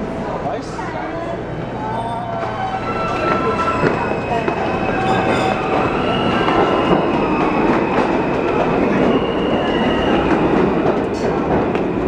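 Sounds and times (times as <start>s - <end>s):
subway train wheels rumbling: 0.0s - 12.0s
faint high wheel squeal: 0.2s - 8.1s.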